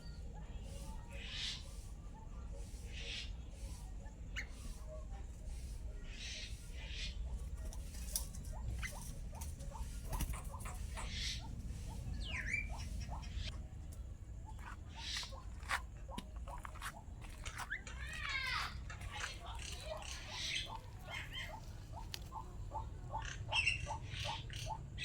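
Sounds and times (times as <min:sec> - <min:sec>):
starling chirping: 0:00.0 - 0:25.0
bird sweeping call: 0:08.8 - 0:13.5.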